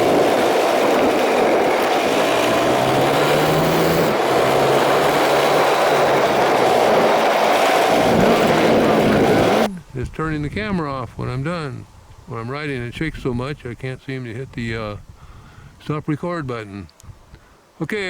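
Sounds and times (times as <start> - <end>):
dirt bike engine running: 0.0 - 9.7.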